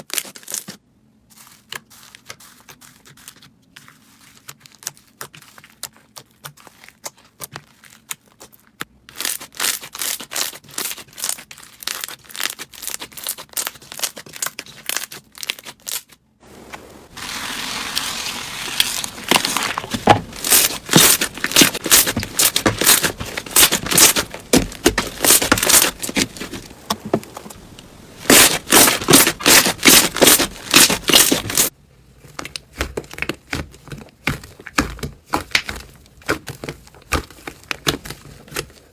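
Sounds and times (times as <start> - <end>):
slime crackling and popping: 17.2 - 31.7.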